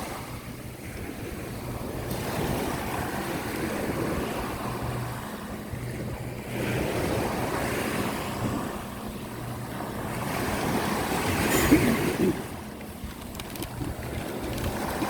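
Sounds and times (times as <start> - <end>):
wind buffeting microphone: 0.0 - 15.0
surf washing onto beach: 6.0 - 15.0.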